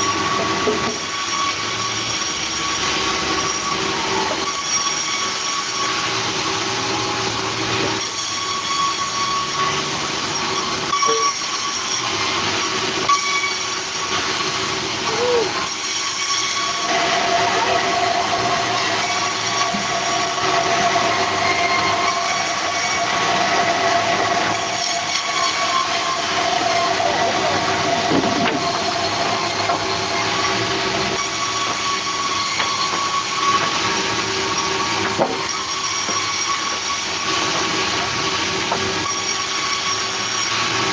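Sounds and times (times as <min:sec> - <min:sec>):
sawmill saw running: 0:00.0 - 0:40.9
high ringing tone: 0:10.9 - 0:11.4.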